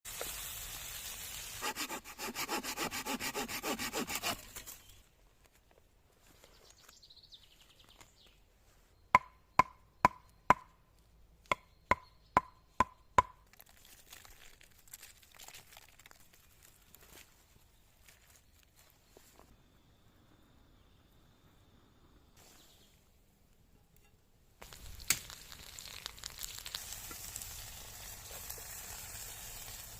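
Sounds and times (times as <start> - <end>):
hand saw cutting wood: 1.6 - 4.8.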